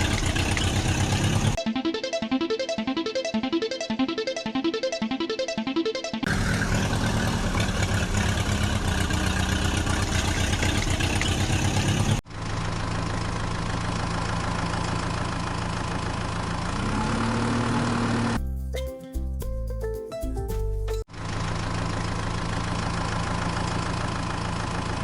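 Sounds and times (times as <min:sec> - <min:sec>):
heavy vehicle engine running: 0:00.0 - 0:01.6, 0:06.3 - 0:18.4, 0:21.1 - 0:25.0
smoother engine sound: 0:00.0 - 0:01.6, 0:06.2 - 0:18.4.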